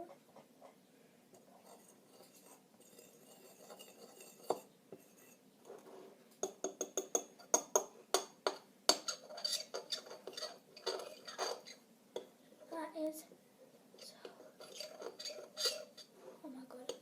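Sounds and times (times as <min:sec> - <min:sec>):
utensil scraping a mixing bowl: 0:01.4 - 0:07.9, 0:08.9 - 0:11.8, 0:14.0 - 0:17.0.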